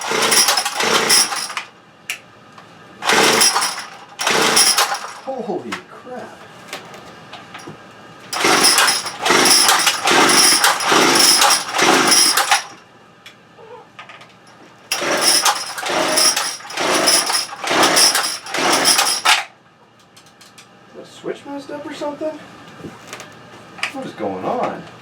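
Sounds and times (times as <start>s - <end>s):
small two-stroke engine surging: 0.0s - 1.6s, 3.0s - 5.3s, 8.4s - 12.8s, 14.9s - 19.3s.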